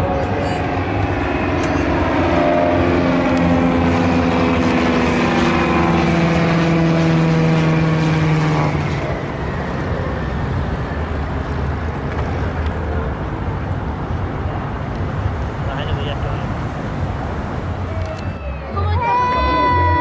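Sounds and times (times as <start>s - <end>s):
propeller plane engine: 0.0s - 20.0s.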